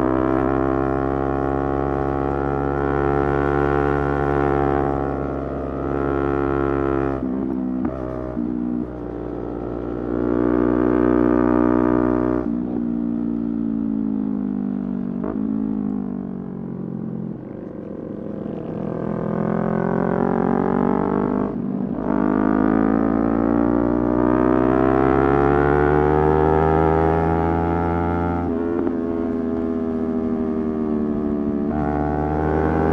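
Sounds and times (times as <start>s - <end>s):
motorcycle engine changing pitch: 17.4s - 32.9s.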